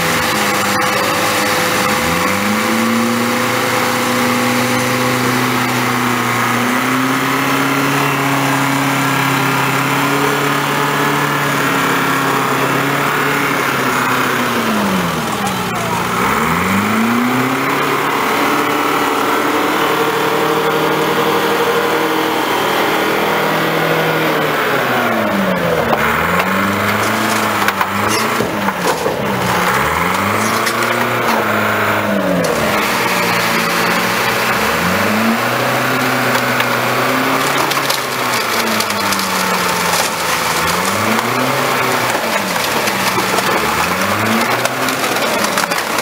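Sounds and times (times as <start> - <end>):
car crusher engine revving: 0.0 - 46.0
vehicle body cracking and crunching: 25.1 - 46.0.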